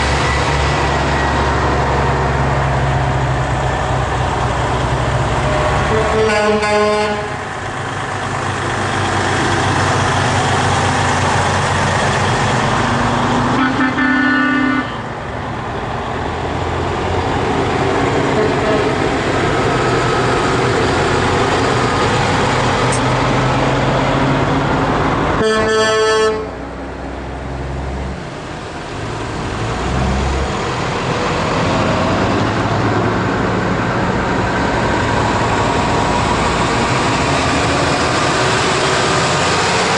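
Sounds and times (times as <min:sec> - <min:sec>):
diesel truck engines passing: 0:00.0 - 0:39.9
air horn blasts: 0:05.9 - 0:07.4, 0:13.6 - 0:15.0, 0:18.4 - 0:18.9, 0:25.4 - 0:26.6.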